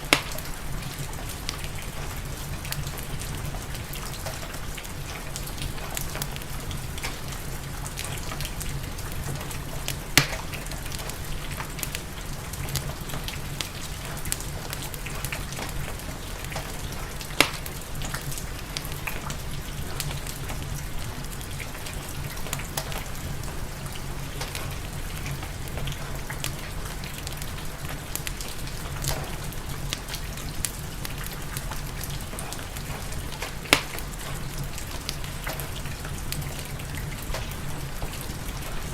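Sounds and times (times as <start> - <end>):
sharp fire pops: 0.0 - 0.6, 10.2 - 12.0, 16.5 - 18.2, 29.0 - 35.8
steady rain: 0.0 - 38.9
wood fire crackling: 0.0 - 38.9.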